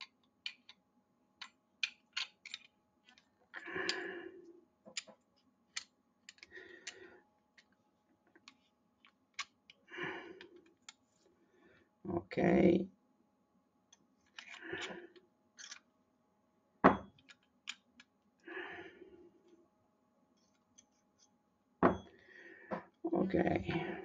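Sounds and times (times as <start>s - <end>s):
pistol parts clicking: 0.0s - 0.8s, 1.4s - 3.2s, 5.7s - 7.0s, 8.4s - 9.8s.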